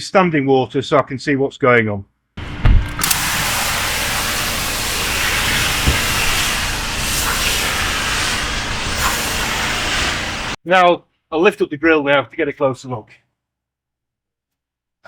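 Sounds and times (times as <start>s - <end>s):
pressure washer spraying water: 3.0s - 10.6s.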